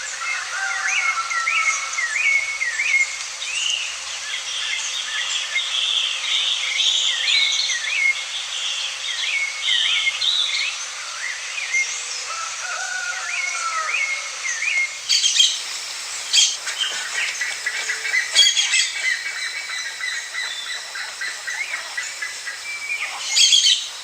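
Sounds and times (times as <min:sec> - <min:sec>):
high bird chatter: 0:00.0 - 0:24.0
bird swooping chirps: 0:13.9 - 0:24.0.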